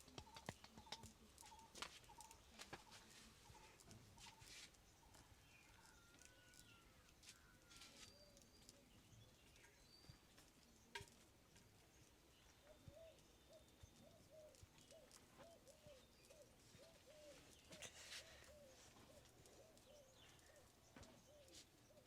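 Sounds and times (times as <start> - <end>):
faint bird calls: 12.6 - 22.0.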